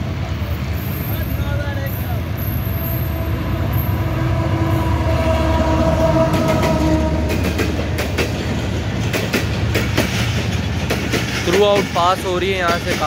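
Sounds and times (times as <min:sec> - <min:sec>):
locomotive tone: 0:00.0 - 0:12.9
train rumbling past: 0:00.0 - 0:13.0
wheels clicking over rail joints: 0:06.3 - 0:13.0.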